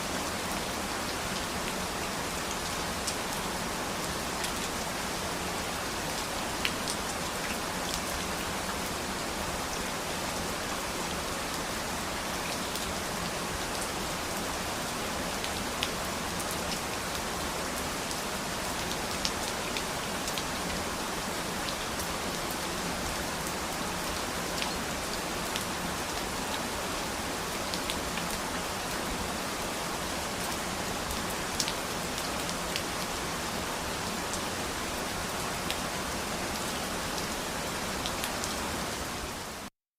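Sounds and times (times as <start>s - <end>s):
steady rain falling: 0.0s - 39.7s.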